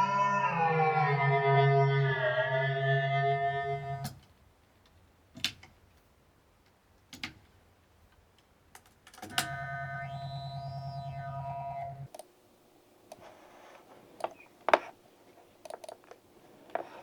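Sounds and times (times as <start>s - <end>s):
electronic held tone: 0.0s - 4.1s, 9.3s - 12.1s
low hum: 0.0s - 4.1s, 9.3s - 12.1s.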